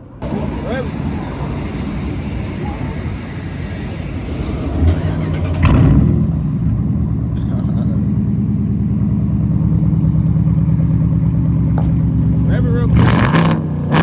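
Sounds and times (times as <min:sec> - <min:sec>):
car engine revving and idling: 0:00.0 - 0:14.0.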